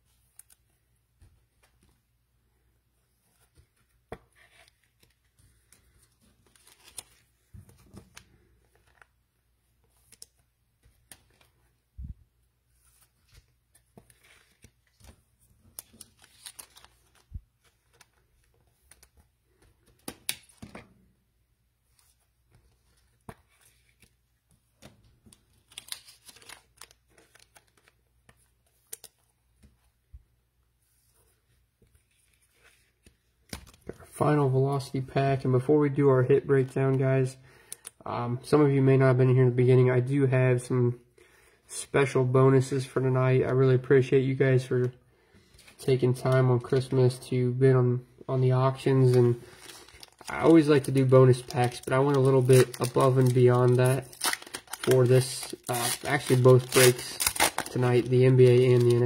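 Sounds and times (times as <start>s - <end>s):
cards handled rustling and clicking: 0.1s - 2.0s, 3.2s - 11.8s, 12.7s - 20.9s, 21.9s - 29.9s, 30.9s - 35.5s, 48.6s - 59.0s
card wrappers tearing and crinkling: 6.3s - 7.3s, 15.7s - 18.2s, 25.3s - 28.0s, 48.7s - 59.0s.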